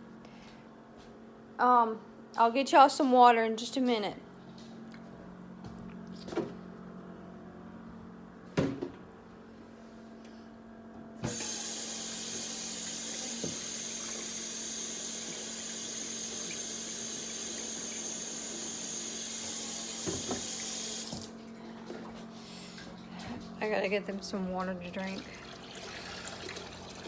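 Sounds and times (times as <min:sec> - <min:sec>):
water tap running: 0:11.2 - 0:21.4, 0:25.0 - 0:27.0.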